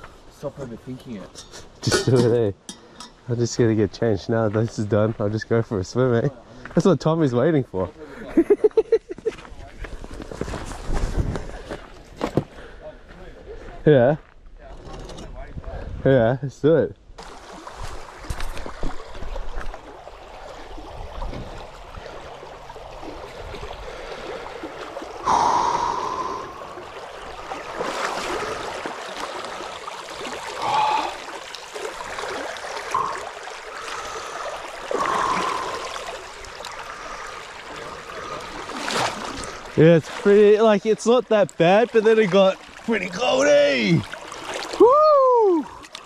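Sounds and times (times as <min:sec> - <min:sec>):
stream water running: 0:00.0 - 0:12.9, 0:17.2 - 0:46.0
water splashing and gurgling: 0:17.2 - 0:46.0.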